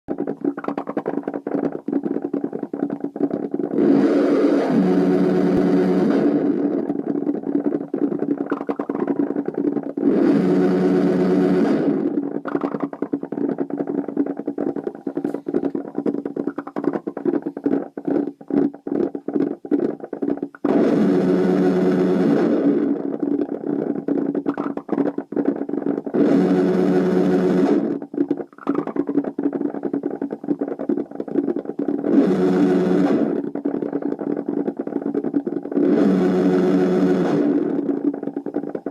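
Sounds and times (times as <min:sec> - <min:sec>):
stuttering crackle: 0:00.1 - 0:38.9
distorted synthesizer drone: 0:03.6 - 0:07.1, 0:09.9 - 0:12.8, 0:20.6 - 0:23.2, 0:26.1 - 0:28.0, 0:32.1 - 0:33.4, 0:35.8 - 0:37.9.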